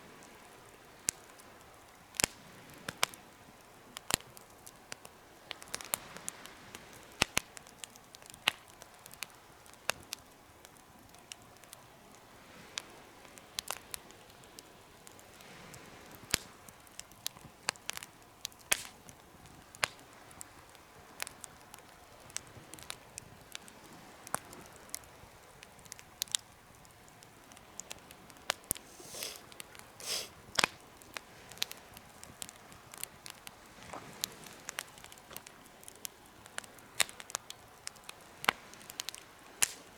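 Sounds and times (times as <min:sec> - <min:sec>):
fire low hiss: 0:00.0 - 0:39.9
wood fire crackling: 0:00.0 - 0:39.9
loud hissing bursts: 0:28.8 - 0:30.4.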